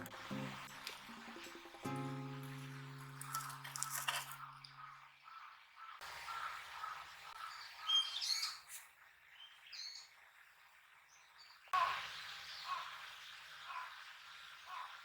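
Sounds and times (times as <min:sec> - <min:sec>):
birds chirping: 0:00.0 - 0:15.0
faint repeating bird call: 0:04.4 - 0:08.7, 0:11.7 - 0:15.0.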